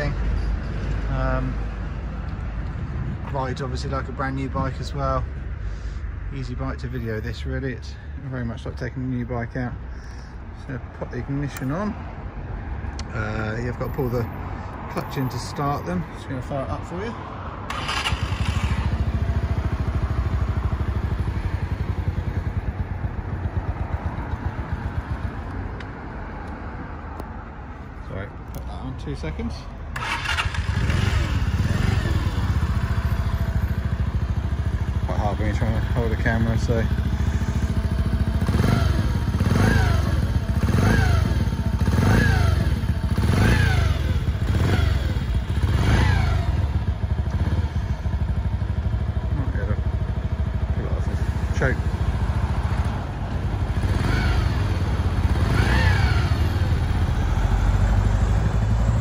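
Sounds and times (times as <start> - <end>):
motorcycle engine running: 17.7 - 25.5, 30.0 - 59.0.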